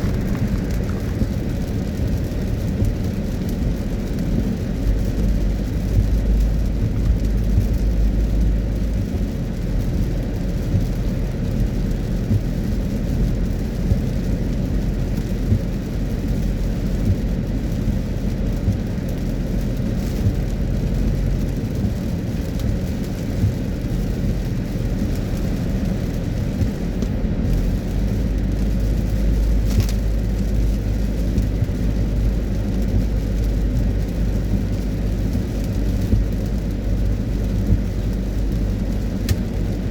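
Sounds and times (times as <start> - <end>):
tyres and engine rumbling: 0.0 - 14.8
hiss of rain and spray: 0.0 - 39.9.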